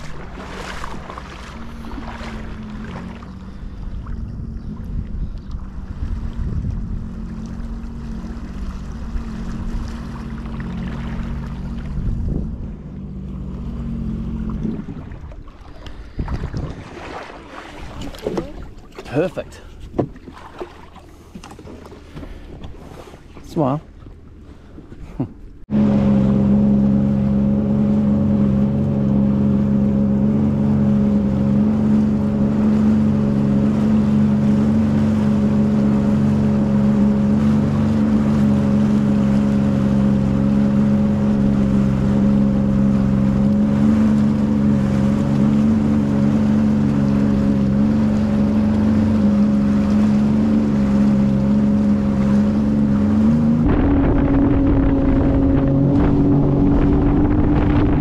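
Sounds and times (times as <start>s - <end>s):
jet ski engine running: 0.0s - 58.0s
wind noise on microphone: 3.8s - 7.3s, 11.8s - 13.0s, 14.4s - 17.1s, 52.6s - 58.0s.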